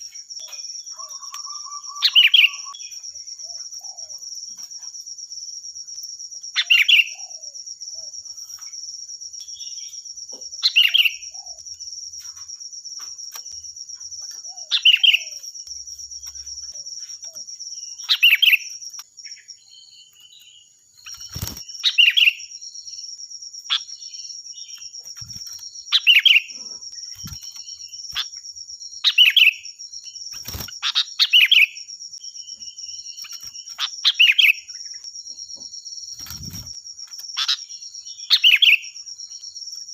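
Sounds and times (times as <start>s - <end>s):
bird singing shrill phrases: 0.0s - 4.2s, 6.5s - 8.2s, 9.4s - 11.6s, 14.2s - 39.6s.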